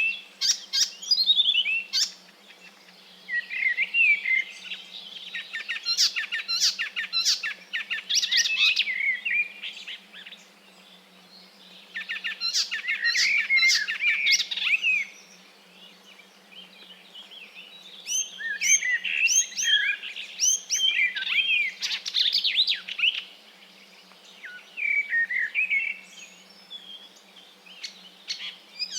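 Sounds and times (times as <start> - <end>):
songbirds singing: 0.0 - 28.9.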